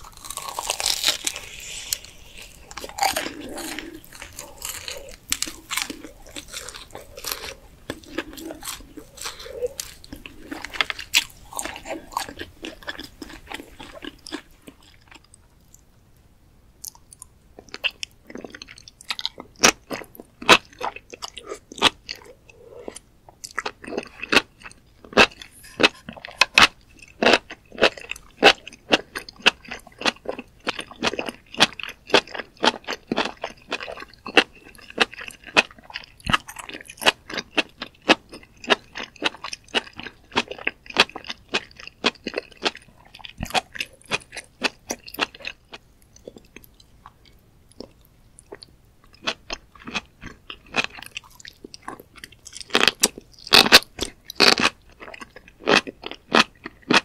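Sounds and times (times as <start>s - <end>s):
biting into mushrooms: 0.0s - 14.4s
close chewing with wet clicks: 16.8s - 57.0s.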